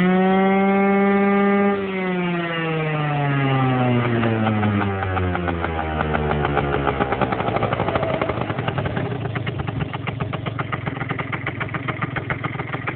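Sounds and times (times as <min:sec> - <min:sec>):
scooter engine idling: 0:03.6 - 0:12.9.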